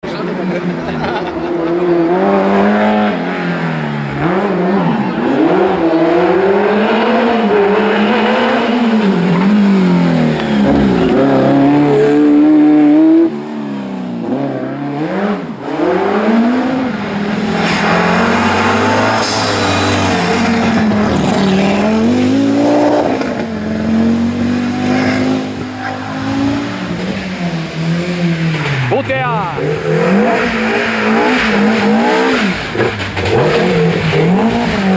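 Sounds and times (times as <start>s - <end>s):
rally car engines at full throttle: 0.0s - 34.9s
tyre noise hiss: 17.6s - 20.9s.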